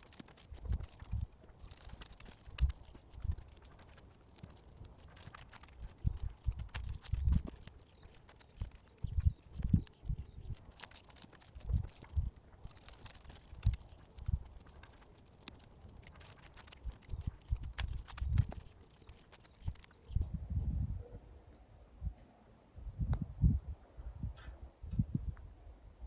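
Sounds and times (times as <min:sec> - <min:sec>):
dry leaves rustling and crackling: 0:00.0 - 0:20.2.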